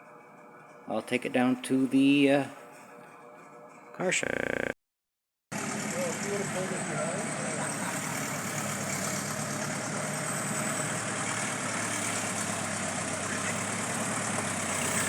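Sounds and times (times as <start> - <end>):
car engine running: 5.5 - 15.0.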